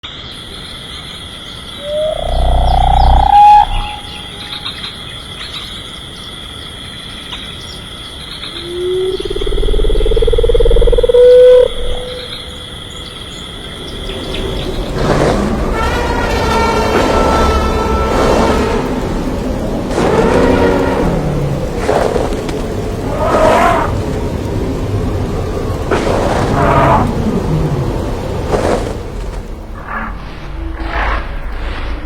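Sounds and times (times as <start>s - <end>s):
high insect buzz: 1.5s - 5.1s, 8.5s - 24.1s
long rising creature calls: 1.8s - 4.3s.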